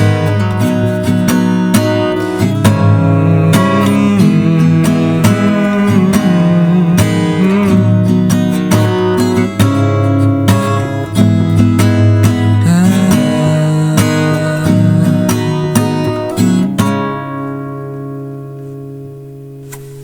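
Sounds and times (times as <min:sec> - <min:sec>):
strummed acoustic guitar music: 0:00.0 - 0:20.0.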